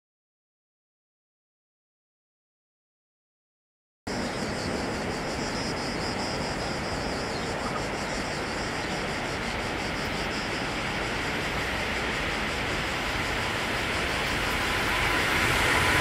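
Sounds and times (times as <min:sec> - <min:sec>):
electric freight train rumbling: 0:04.1 - 0:16.0.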